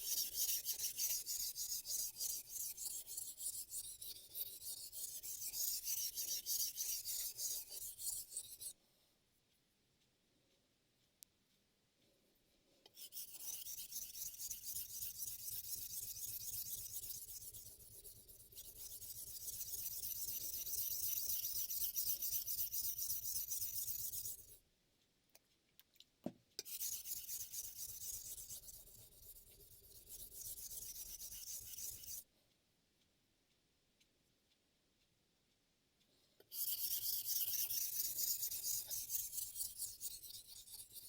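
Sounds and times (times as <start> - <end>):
knife scraping on whetstone: 13.0 - 17.6.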